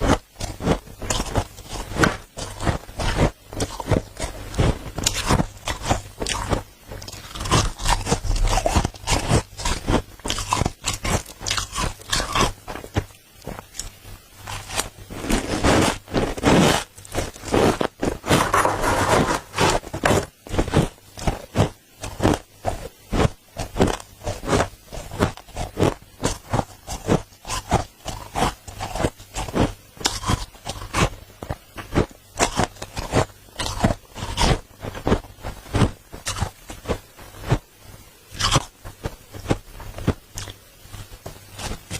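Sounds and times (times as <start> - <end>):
frost crunching and squeaking: 0.0 - 22.4
chewing crunches: 0.0 - 37.6, 38.3 - 41.9
spoon scraping frost: 14.5 - 21.4.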